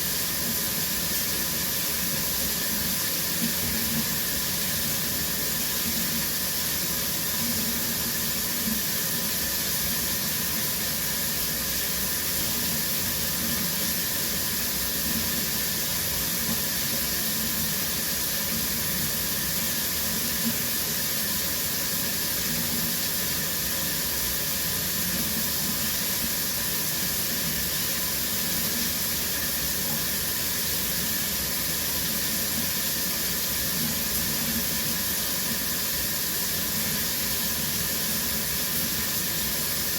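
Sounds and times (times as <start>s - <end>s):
shower water running: 0.0s - 39.9s.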